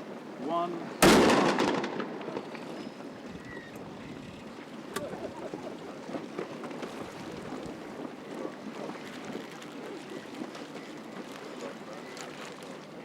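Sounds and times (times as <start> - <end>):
wind on microphone: 3.0 - 9.3
faint voices of onlookers: 4.8 - 13.0.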